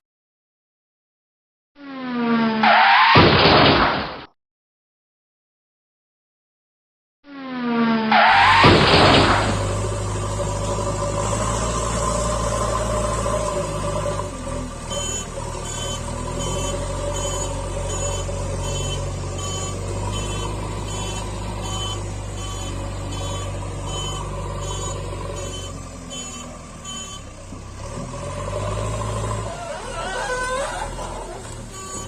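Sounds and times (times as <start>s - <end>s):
engine-like hum: 8.3s - 32.0s
toy reversing beep: 14.9s - 27.3s, 31.7s - 32.0s.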